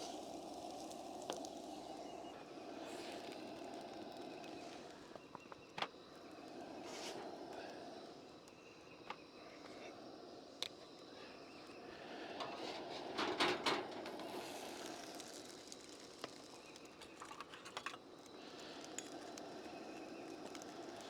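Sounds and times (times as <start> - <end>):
food sizzling in a pan: 0.0 - 3.9, 14.0 - 17.2.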